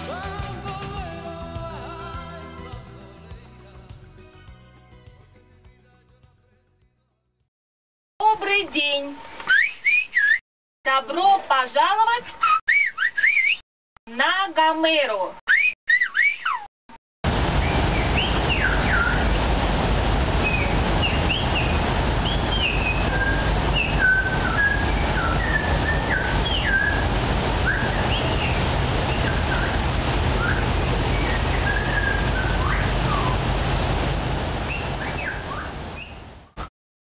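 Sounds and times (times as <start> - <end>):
small birds chirping: 12.4 - 13.6, 23.7 - 33.4
low rumble and hiss: 17.3 - 36.0.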